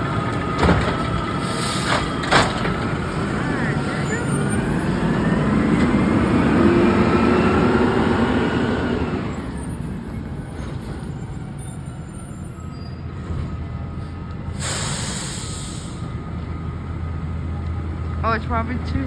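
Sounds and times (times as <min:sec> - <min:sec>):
garbage truck engine running: 0:00.0 - 0:19.0
air hiss: 0:14.6 - 0:16.0.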